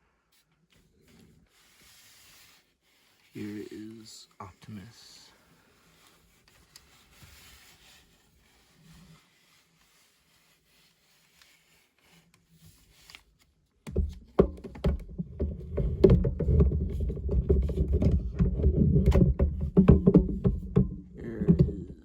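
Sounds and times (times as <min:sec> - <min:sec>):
faint handling noise: 0:05.8 - 0:22.0.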